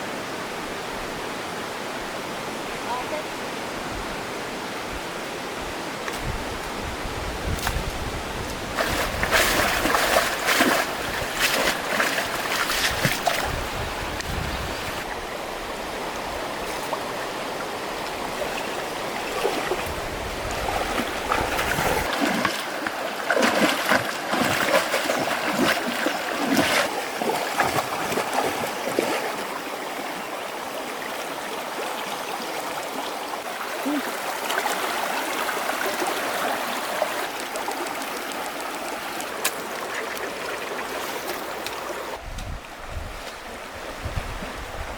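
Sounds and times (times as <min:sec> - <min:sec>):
stream water flowing: 0:00.0 - 0:44.9
irregular splashing: 0:08.7 - 0:15.2, 0:17.9 - 0:29.5.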